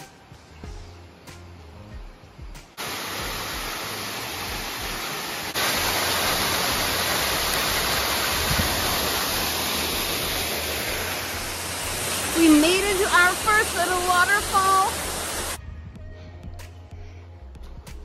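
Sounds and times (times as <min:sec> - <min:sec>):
water rushing at small waterfall: 0:02.8 - 0:15.6.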